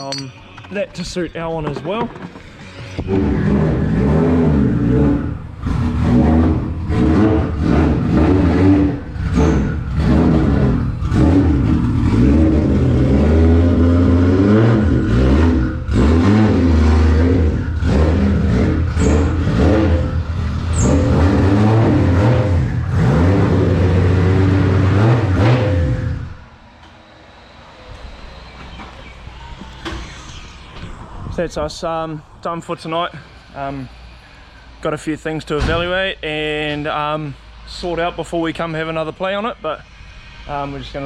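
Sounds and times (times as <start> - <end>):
car engine revving hard: 3.1 - 26.4.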